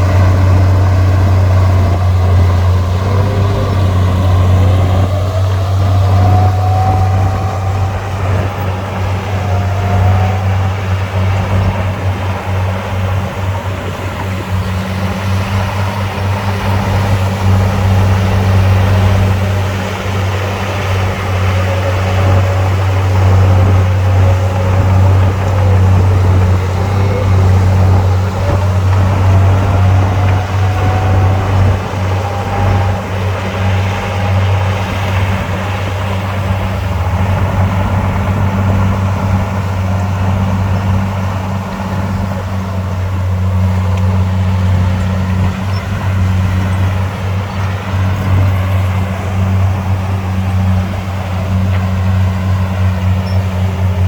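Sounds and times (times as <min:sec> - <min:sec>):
high whine rising and falling: 0:00.0 - 0:41.5
heavy diesel engines droning: 0:00.0 - 0:54.0.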